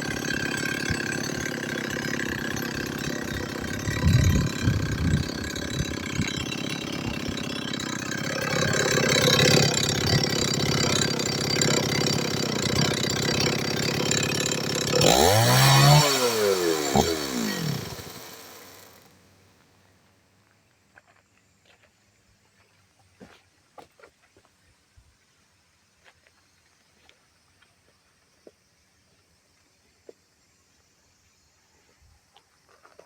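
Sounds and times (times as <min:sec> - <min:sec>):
chainsaw engine running and revving: 0:00.0 - 0:19.1.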